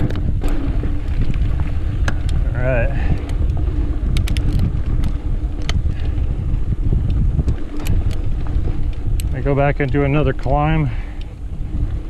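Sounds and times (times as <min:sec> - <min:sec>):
bike clicks and rattles: 0:00.0 - 0:12.0
bike tyres rumbling on dirt: 0:00.0 - 0:12.0
wind buffeting microphone: 0:00.0 - 0:12.0.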